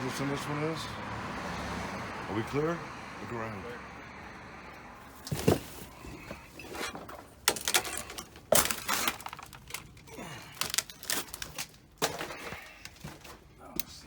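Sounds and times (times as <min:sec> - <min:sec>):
broken glass crunching underfoot: 0:05.2 - 0:13.5.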